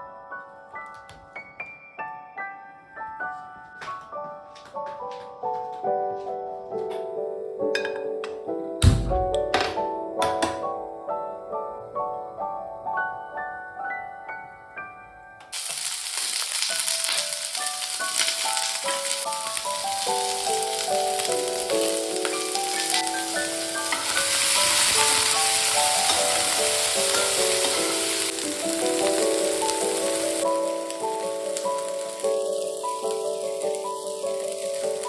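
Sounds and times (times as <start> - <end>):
soft mallet and piano music: 0.0 - 35.0
food sizzling in a pan: 15.5 - 35.0.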